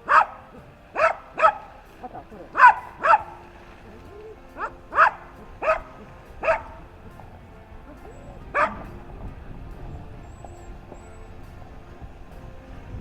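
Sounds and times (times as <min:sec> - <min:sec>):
dog barking: 0:00.0 - 0:03.5, 0:04.2 - 0:06.8, 0:08.4 - 0:09.0.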